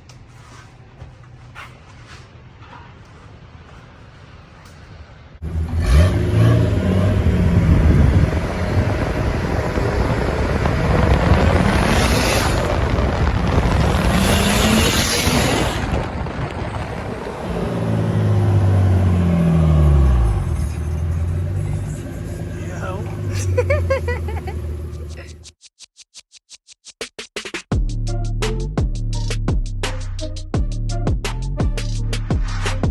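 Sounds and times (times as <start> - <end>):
cars driving past: 2.4 - 25.4
car engines revving: 5.3 - 25.5.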